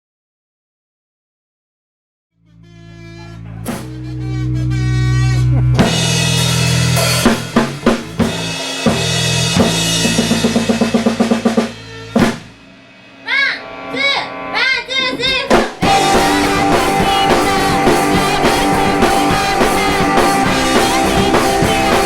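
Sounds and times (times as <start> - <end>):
live rock band playing: 2.6 - 22.0
drum kit hits: 3.2 - 14.0, 15.0 - 22.0.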